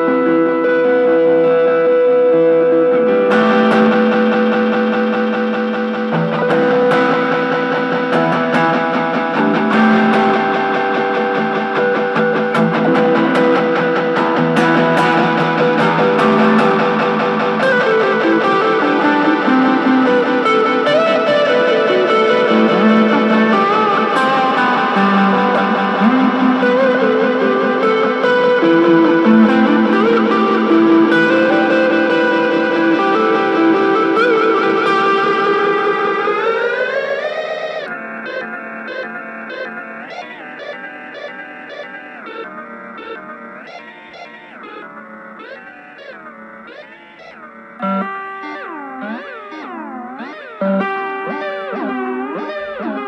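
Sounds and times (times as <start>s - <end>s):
electric guitar with delay: 0.0s - 53.0s.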